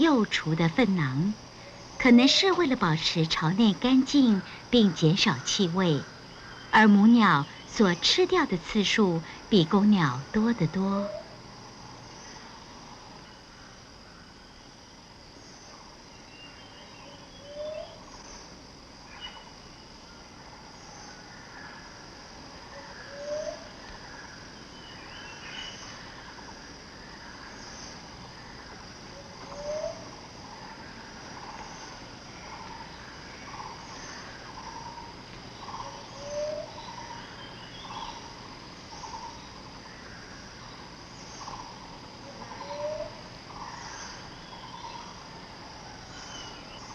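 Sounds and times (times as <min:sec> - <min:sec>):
insect drone: 0:00.0 - 0:46.9
bird calls and chirps: 0:15.6 - 0:18.5, 0:19.1 - 0:19.6, 0:22.9 - 0:26.5, 0:27.2 - 0:45.2, 0:46.0 - 0:46.9.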